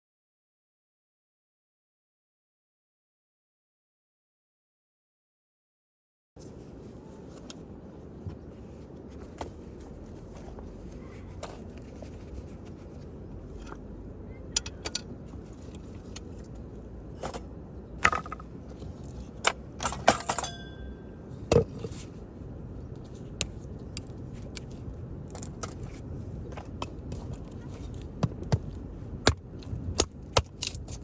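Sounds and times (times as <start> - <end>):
steady low rumble: 6.4 - 31.0.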